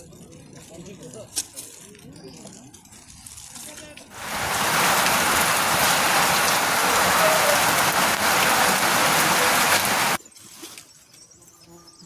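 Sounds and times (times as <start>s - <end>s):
heavy rain hissing: 4.2s - 10.2s.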